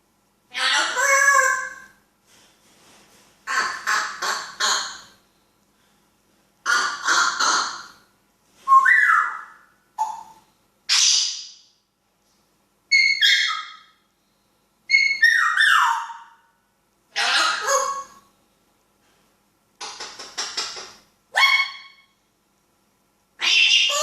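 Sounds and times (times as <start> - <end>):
parrot whistling and squawking: 8.7 - 11.5, 12.9 - 13.9, 14.9 - 16.4, 17.2 - 18.2, 21.3 - 22.1, 23.4 - 24.0.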